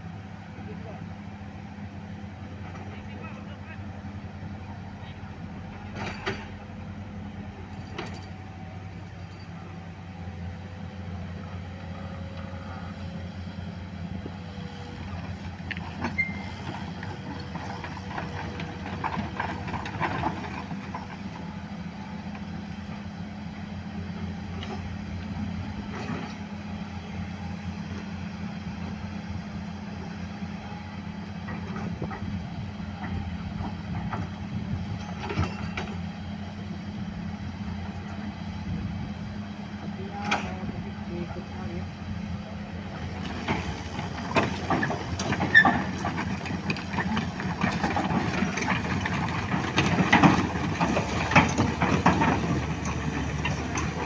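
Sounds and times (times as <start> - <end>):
heavy diesel engine running: 0.0 - 54.0
machinery clanking and knocking: 5.4 - 9.7, 14.2 - 38.8, 39.8 - 54.0.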